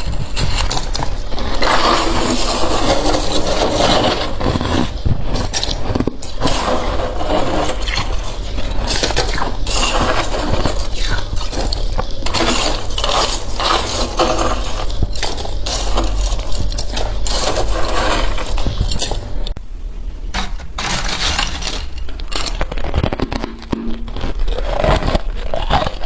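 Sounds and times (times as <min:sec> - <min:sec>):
metal utensil scraping frost: 0:00.0 - 0:19.5.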